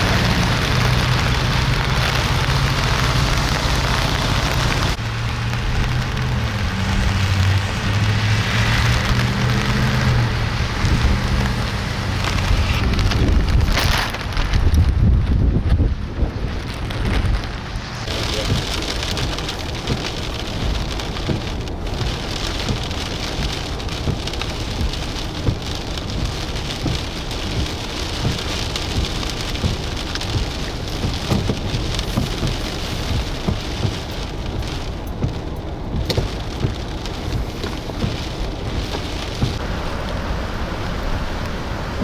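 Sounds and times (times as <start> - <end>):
wind rushing: 0.0 - 18.8, 37.9 - 42.0
wind gusts on microphone: 0.0 - 42.0.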